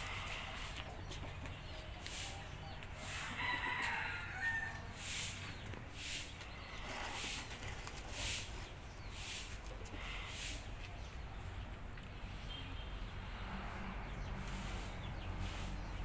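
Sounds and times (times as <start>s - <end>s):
rooster crowing: 3.0s - 5.0s.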